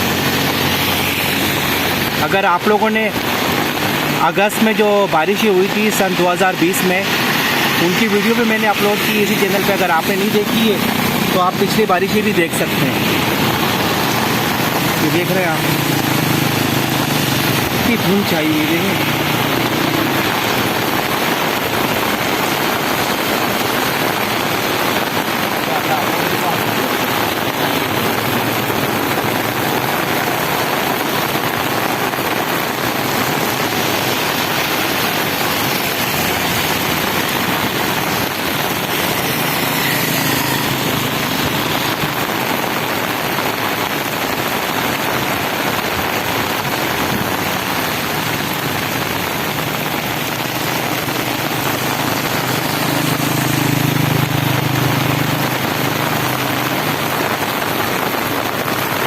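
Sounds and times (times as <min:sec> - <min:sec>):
vehicle engine: 0:00.0 - 0:02.4, 0:07.0 - 0:59.0
heavy rain: 0:00.0 - 0:59.0
road traffic passing: 0:00.0 - 0:59.0.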